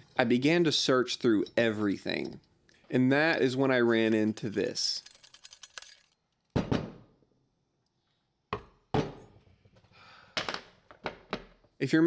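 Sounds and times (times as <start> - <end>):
lantern parts knocking and clinking: 3.4 - 6.8.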